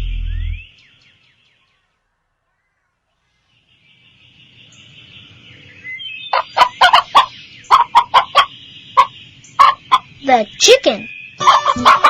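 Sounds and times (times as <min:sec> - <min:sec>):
faint farmyard background: 0:01.6 - 0:12.0
chickens clucking: 0:06.3 - 0:10.2, 0:11.4 - 0:12.0.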